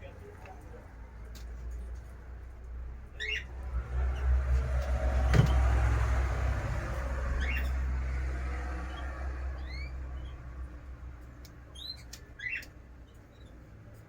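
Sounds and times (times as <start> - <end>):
small birds chirping: 3.1 - 3.5, 11.4 - 13.6.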